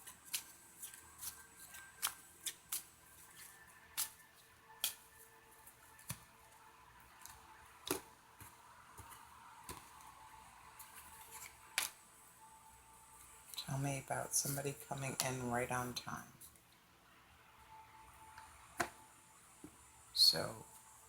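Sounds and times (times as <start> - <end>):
cards being shuffled: 0.0 - 6.2, 10.8 - 12.0.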